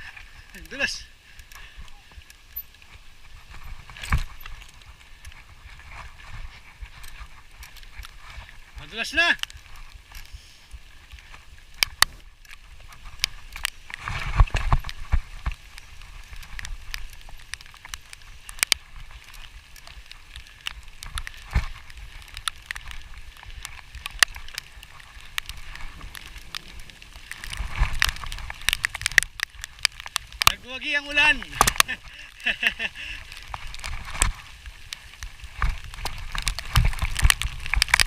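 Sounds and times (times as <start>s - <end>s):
rain falling: 0.0s - 38.0s
raindrops tapping on recorder: 0.0s - 38.0s
low rumble: 25.5s - 28.7s.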